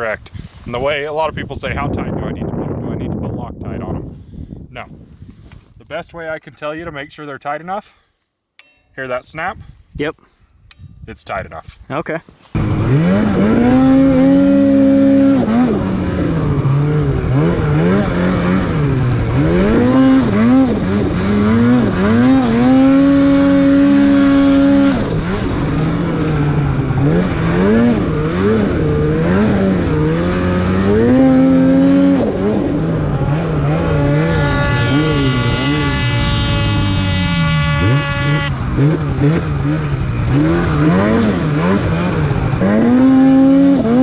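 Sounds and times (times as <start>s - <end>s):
snowmobile engine revving: 12.5s - 44.0s.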